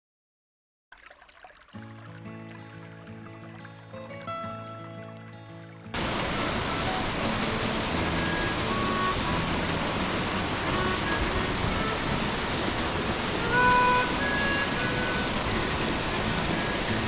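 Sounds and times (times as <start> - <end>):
mountain stream rushing: 1.6 - 17.0
short whistled note: 7.9 - 9.7, 13.4 - 17.0.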